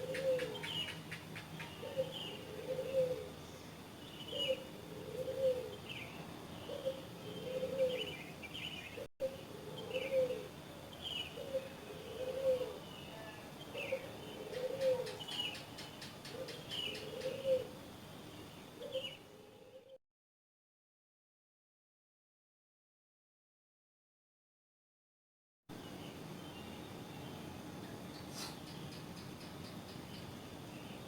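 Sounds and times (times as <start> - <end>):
dove cooing: 0.0 - 1.0, 1.6 - 3.4, 4.3 - 6.0, 6.6 - 8.3, 8.9 - 10.6, 11.2 - 12.9, 13.7 - 17.8, 18.8 - 20.0
small birds chirping: 0.0 - 19.3, 25.8 - 31.0.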